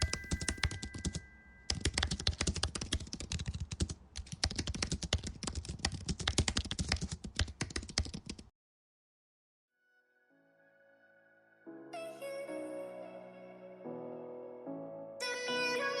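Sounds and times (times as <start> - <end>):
typing on computer keyboard: 0.0 - 8.5.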